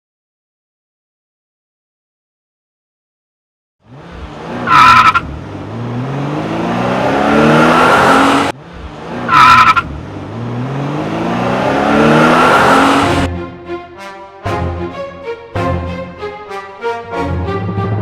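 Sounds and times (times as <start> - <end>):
race car engine accelerating: 3.9 - 13.4, 17.0 - 18.0
tyre screech: 4.6 - 5.3, 9.3 - 9.9.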